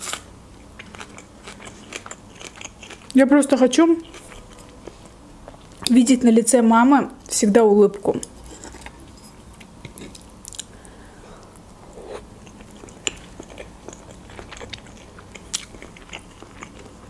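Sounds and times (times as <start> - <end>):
wet chewing: 0.8 - 3.2, 12.1 - 17.0.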